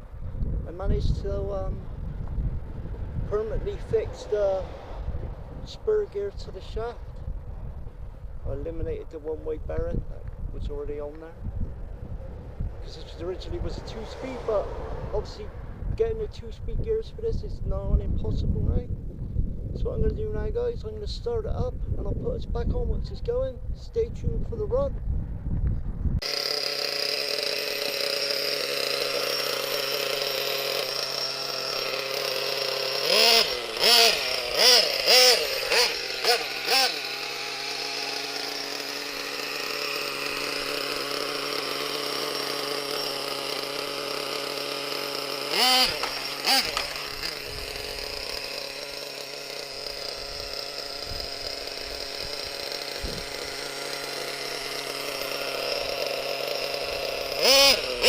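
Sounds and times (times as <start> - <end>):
engine revving in short blips: 26.2 - 58.0
small two-stroke engine idling: 26.2 - 58.0.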